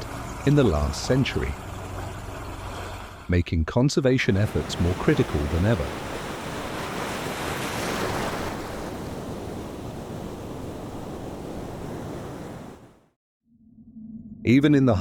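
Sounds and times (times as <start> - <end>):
ocean surf washing in: 4.3 - 13.2.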